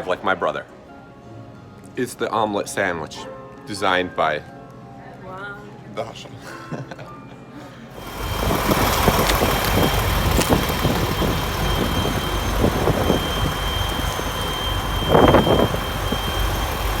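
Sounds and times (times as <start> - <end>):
vehicle engine running: 8.0 - 17.0
wind buffeting microphone: 8.0 - 17.0.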